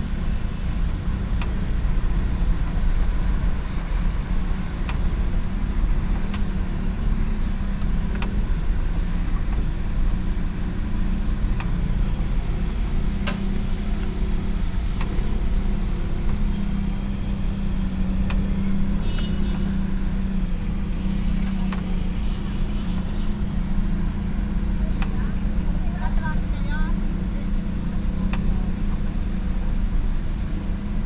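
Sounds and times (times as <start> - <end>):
vehicle engine rumbling: 0.0 - 31.0
faint clicks: 6.2 - 8.8, 9.4 - 12.0, 28.1 - 29.4.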